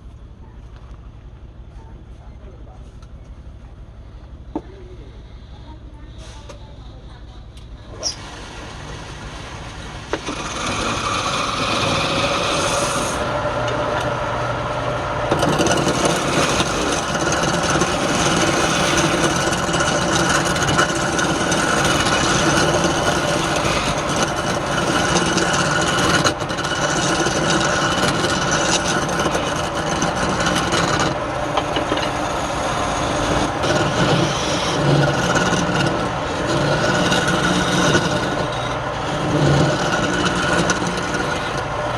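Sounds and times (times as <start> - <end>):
tool scraping spinning wood: 7.9 - 41.9
wood lathe running: 8.7 - 41.9.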